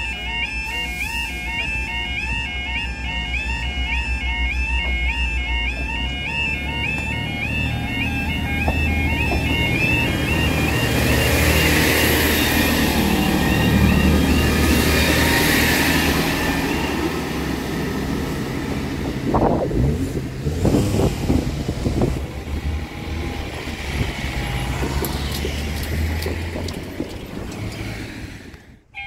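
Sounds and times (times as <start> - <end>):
warbling two-tone crossing alarm: 0.0 - 19.6, 21.0 - 29.0
diesel train engine and wheel rumble: 0.0 - 29.0
irregular knocks: 4.7 - 11.8, 22.1 - 28.2.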